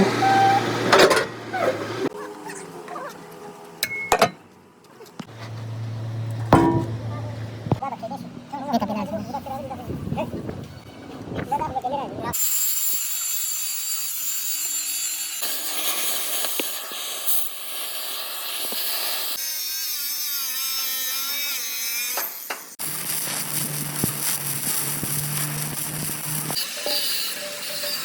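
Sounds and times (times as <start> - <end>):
steady low hum: 6.5 - 7.8
harsh high-pitched tool noise: 24.3 - 28.0.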